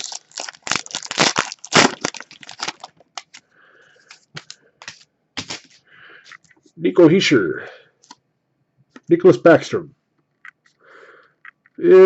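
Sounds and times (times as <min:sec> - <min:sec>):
cards rustling: 0:00.0 - 0:03.4, 0:04.0 - 0:06.5
wrapper tearing and crinkling: 0:00.0 - 0:03.4, 0:04.1 - 0:05.8.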